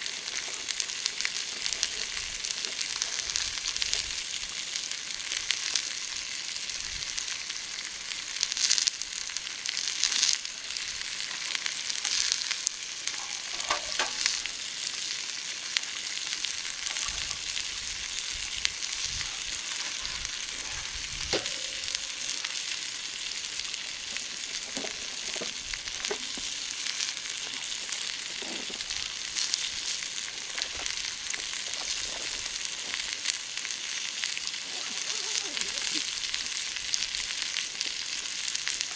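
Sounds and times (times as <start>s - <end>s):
oil sizzling in frying pan: 0.0s - 38.9s
oil popping: 9.8s - 38.9s.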